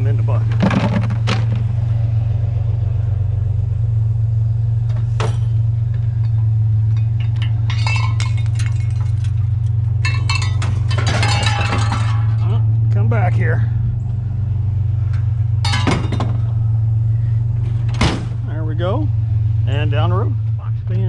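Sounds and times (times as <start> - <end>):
vehicle engine idling: 0.0 - 21.0
scrap metal clinking into bucket: 7.0 - 12.6, 15.7 - 16.3.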